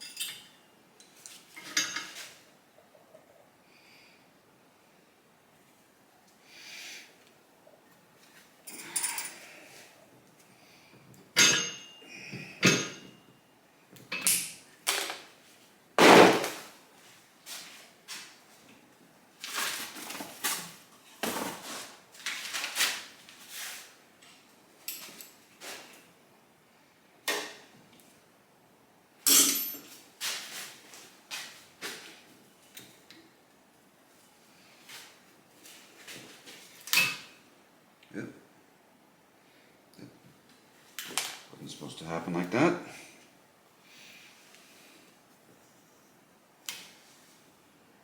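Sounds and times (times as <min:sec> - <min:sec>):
tools and metal parts clanking: 0:00.0 - 0:02.3, 0:08.7 - 0:09.4, 0:14.1 - 0:15.2, 0:29.3 - 0:30.0.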